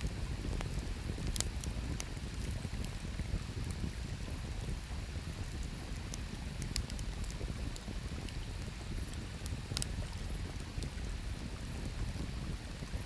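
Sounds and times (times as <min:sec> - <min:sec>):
campfire wood crackling and popping: 0:00.1 - 0:04.4, 0:05.2 - 0:11.0.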